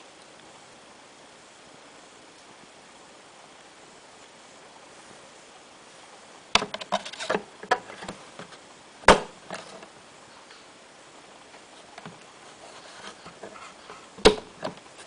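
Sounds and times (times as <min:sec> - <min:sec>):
faint steady hiss: 0:00.0 - 0:15.0
hard clicks and knocks: 0:06.6 - 0:08.5.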